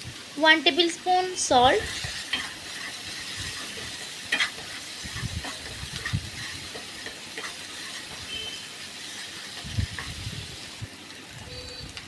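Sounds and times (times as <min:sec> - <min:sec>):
paste sizzling in hot oil: 0:00.0 - 0:11.4
spoon scraping a pan: 0:01.8 - 0:10.3.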